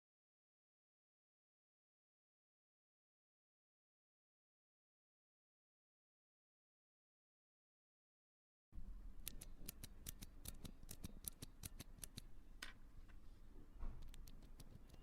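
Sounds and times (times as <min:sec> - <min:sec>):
mechanical keyboard key clicks: 0:09.2 - 0:12.3.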